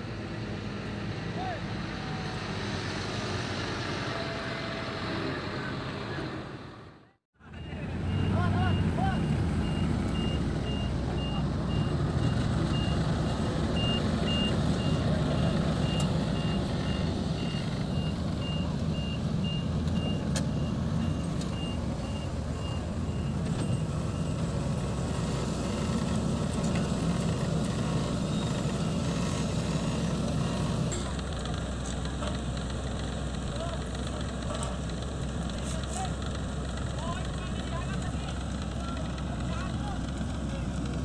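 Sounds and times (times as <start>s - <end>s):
heavy diesel machinery running: 0.0s - 41.0s
reversing alarm beeping: 7.5s - 24.5s.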